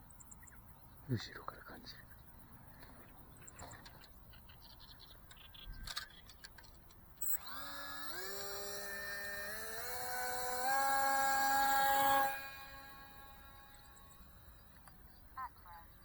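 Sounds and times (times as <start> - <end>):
small electric motor whine: 5.5 - 16.0
faint clicks: 14.7 - 15.0.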